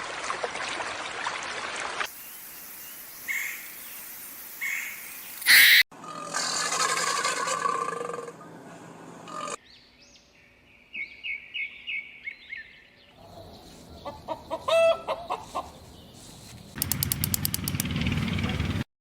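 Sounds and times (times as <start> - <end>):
bird chirping: 2.1 - 5.8, 9.3 - 18.3.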